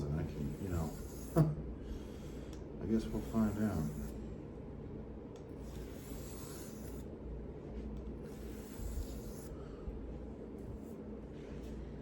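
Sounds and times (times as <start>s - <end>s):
knife scraping on whetstone: 0.3s - 1.5s, 5.6s - 7.0s, 8.3s - 9.6s.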